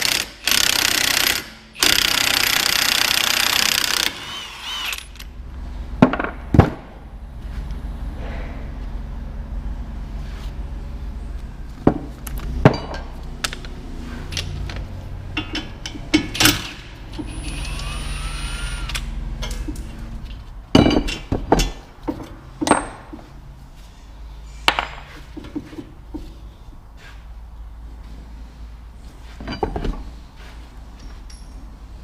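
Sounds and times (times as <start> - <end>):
low hum: 4.4 - 21.9
hand tools clinking on metal: 14.3 - 17.8, 30.9 - 31.8.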